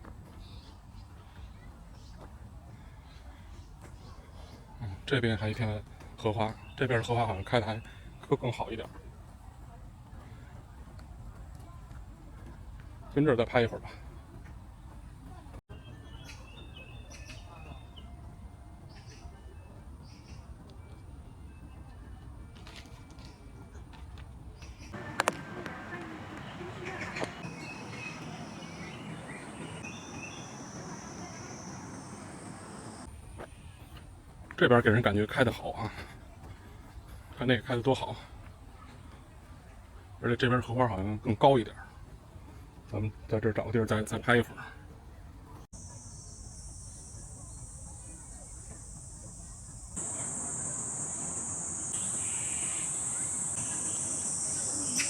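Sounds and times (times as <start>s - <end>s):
insects droning: 25.0s - 33.1s, 45.8s - 55.0s
rushing noise: 25.0s - 33.1s
background hiss: 25.0s - 33.6s, 45.8s - 55.0s.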